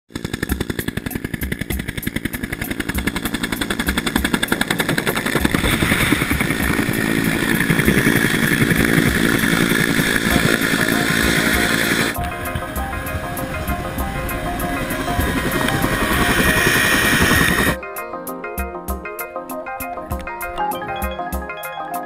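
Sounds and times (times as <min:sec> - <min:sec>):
helicopter engine drone: 0:00.1 - 0:17.8
helicopter rotor blades chopping: 0:00.1 - 0:17.8.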